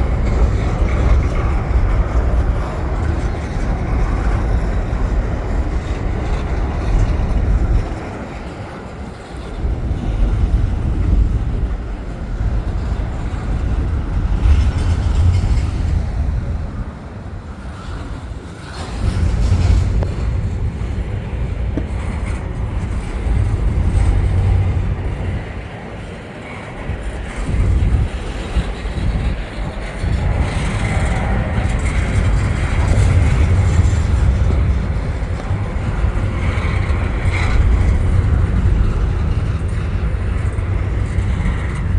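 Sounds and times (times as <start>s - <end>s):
freight train rumbling on rails: 0.0s - 41.9s.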